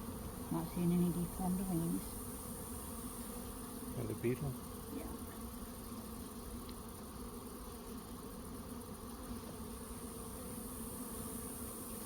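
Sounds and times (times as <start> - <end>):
honey bees humming: 0.0 - 12.0.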